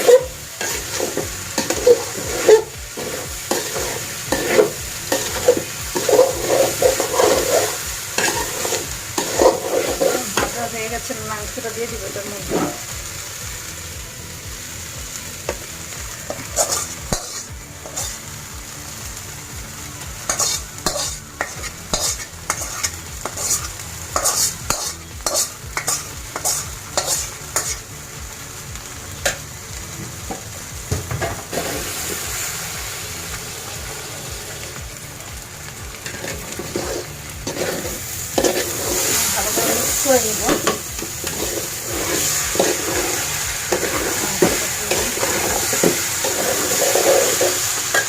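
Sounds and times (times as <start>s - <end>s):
food sizzling in hot oil: 0.0s - 48.0s
spoon scraping a pot: 20.3s - 27.8s.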